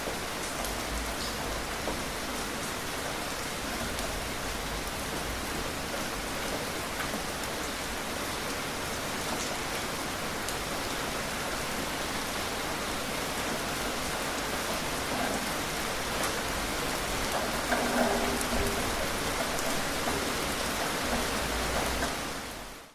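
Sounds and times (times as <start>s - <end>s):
steady rain hiss: 0.0s - 22.9s
raindrop ticks: 14.6s - 22.7s.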